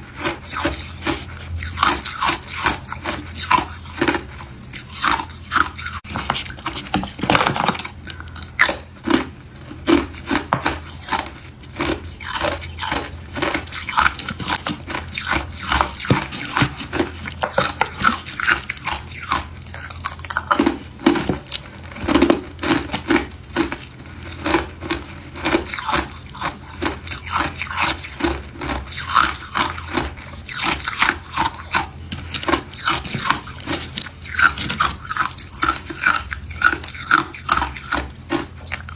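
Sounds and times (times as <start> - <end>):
ice cubes crunching when chewed: 0.0 - 38.9.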